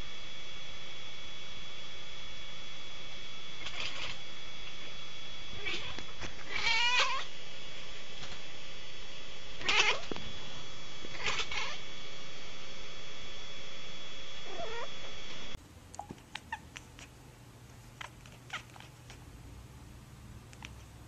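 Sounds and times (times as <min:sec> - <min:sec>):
cat meow: 0:03.6 - 0:04.2, 0:05.5 - 0:07.3, 0:09.6 - 0:10.1, 0:11.1 - 0:11.8, 0:14.4 - 0:14.9, 0:18.0 - 0:18.9
cat crying: 0:05.5 - 0:07.3, 0:09.6 - 0:10.1, 0:11.1 - 0:11.8, 0:14.4 - 0:14.9
faint clicks: 0:20.5 - 0:20.8.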